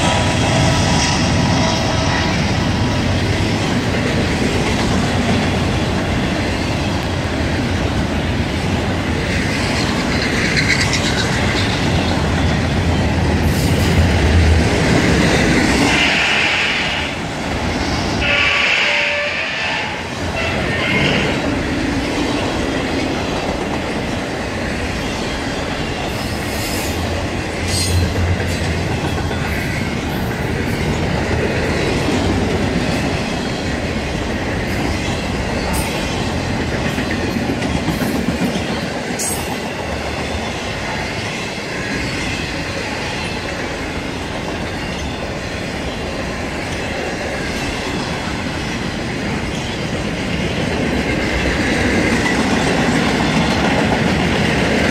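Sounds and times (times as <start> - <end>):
steel wheels on rail: 0.0 - 54.9.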